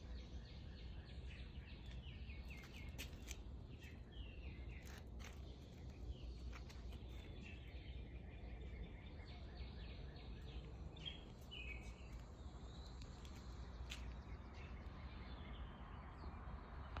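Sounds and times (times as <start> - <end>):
birds chirping: 0.3 - 16.3.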